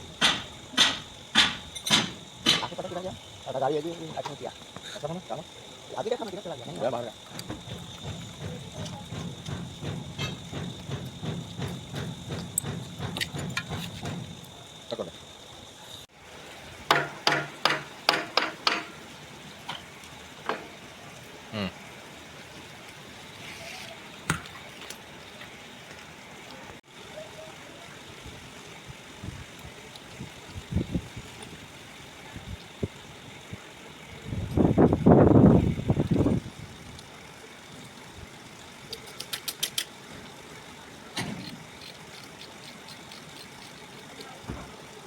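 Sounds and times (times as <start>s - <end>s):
steady background hum: 0.0s - 45.0s
steady background noise: 0.0s - 45.0s
sharp metallic clicks of tools: 38.9s - 39.9s, 41.2s - 44.4s.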